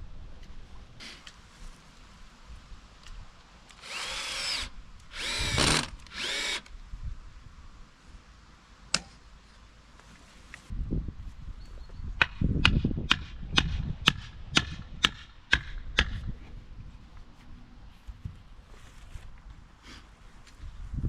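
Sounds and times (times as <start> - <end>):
power drill whine: 3.8 - 6.7.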